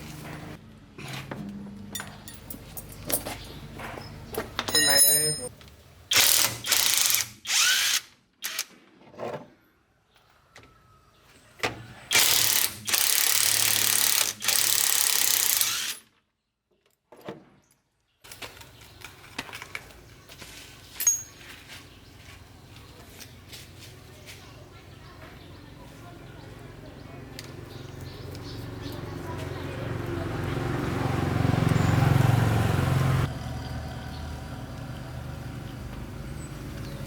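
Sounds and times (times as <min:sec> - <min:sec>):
mechanical tool ratcheting: 0:06.1 - 0:08.7, 0:12.1 - 0:16.1.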